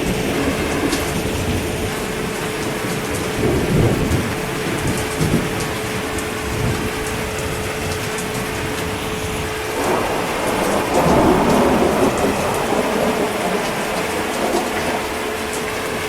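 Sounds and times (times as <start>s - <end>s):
heavy rain: 0.0s - 16.0s
thunder rolling: 0.0s - 16.0s.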